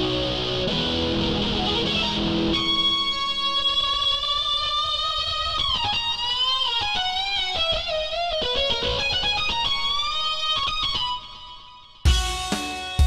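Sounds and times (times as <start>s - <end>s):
synthesizer lead melody with pitch bends: 0.0s - 3.4s.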